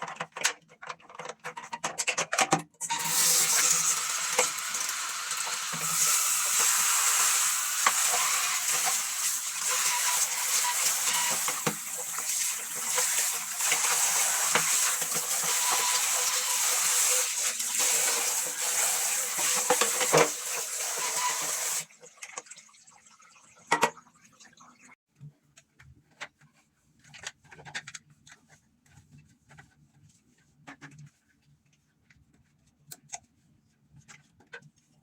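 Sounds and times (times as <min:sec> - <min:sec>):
tap water splashing over parts: 0:03.0 - 0:24.3.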